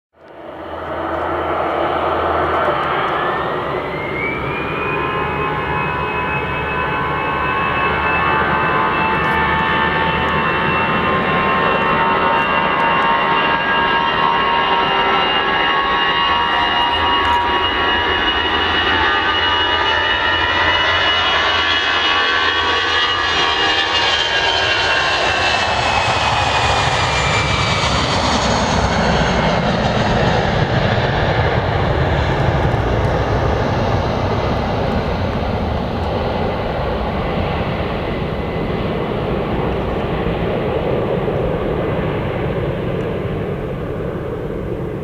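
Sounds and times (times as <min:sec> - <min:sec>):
jet engine rumble: 0:00.2 - 0:45.0
jet engine whine: 0:00.2 - 0:45.0.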